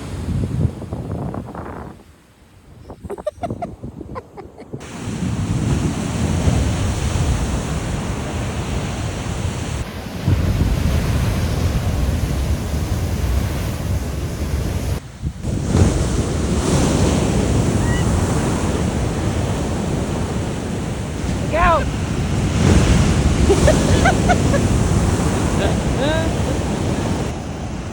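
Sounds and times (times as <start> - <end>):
ocean surf crashing: 0.0 - 27.9
wind buffeting microphone: 0.0 - 27.9.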